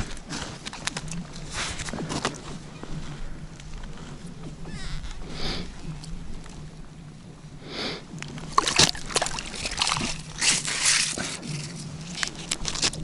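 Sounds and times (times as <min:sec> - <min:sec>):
water and slush sloshing: 0:08.1 - 0:13.0.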